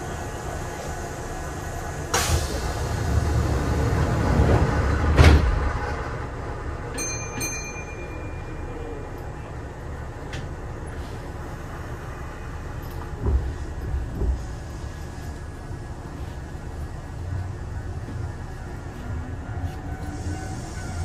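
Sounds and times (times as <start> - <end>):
train low rumble: 0.0 - 21.0
train clunk: 2.1 - 9.5, 11.9 - 21.0.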